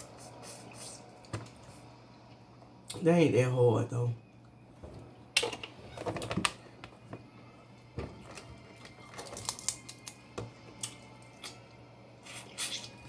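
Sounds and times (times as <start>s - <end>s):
crab shells crunching and cracking: 8.3s - 11.6s.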